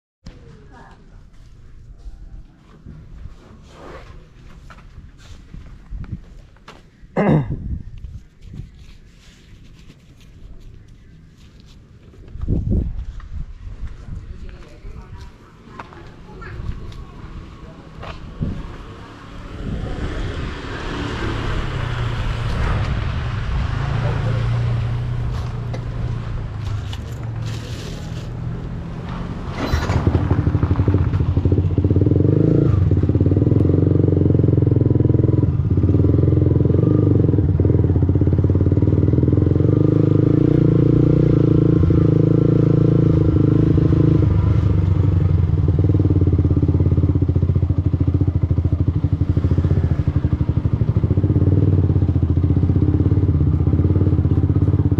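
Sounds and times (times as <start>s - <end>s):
wind rush: 12.4s - 14.4s, 18.3s - 26.7s
motorcycle engine running: 23.5s - 54.9s.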